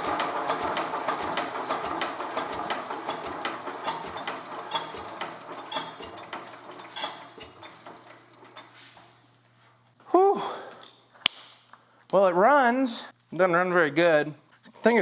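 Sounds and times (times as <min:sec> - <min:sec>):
diesel engine knocking: 0:00.0 - 0:08.1.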